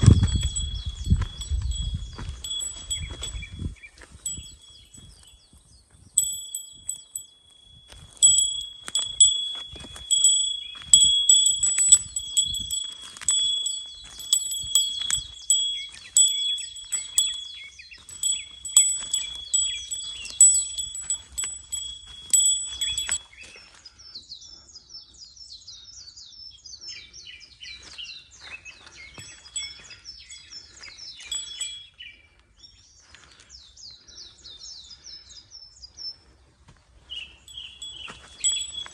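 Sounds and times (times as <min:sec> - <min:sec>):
small metal bell jingling: 0:00.0 - 0:23.3, 0:29.1 - 0:32.0, 0:37.4 - 0:38.9.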